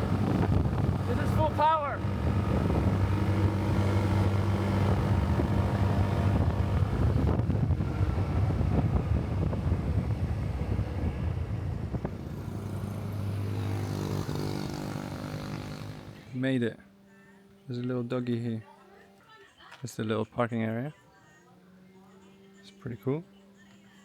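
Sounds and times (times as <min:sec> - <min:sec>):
wind buffeting microphone: 0:00.0 - 0:16.1
motorbike engine at full power: 0:00.0 - 0:16.5.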